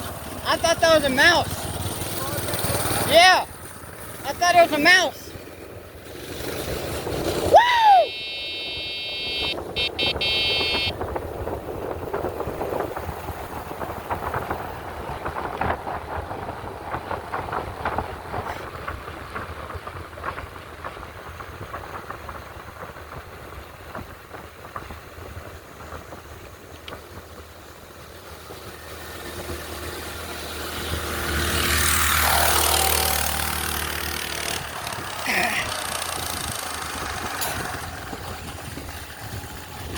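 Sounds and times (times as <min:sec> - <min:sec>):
small bike motor and road noise: 0:00.0 - 0:39.9
rising and falling squeal: 0:07.4 - 0:10.9
high steady whine: 0:07.5 - 0:11.0
rattles: 0:33.6 - 0:39.9.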